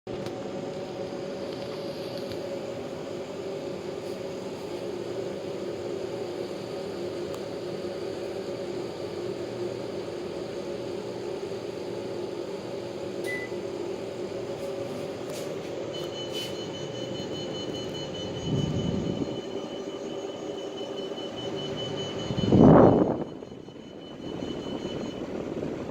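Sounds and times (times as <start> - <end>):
air conditioner fan hum: 0.1 - 25.9
high beep: 13.2 - 13.6, 15.9 - 25.3.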